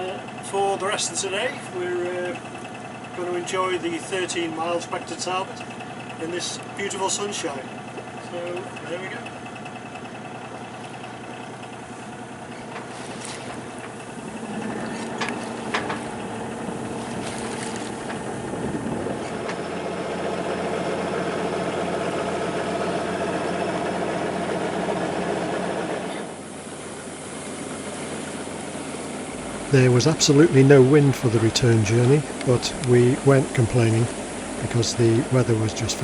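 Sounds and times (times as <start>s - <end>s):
boat engine running: 0.0s - 36.0s.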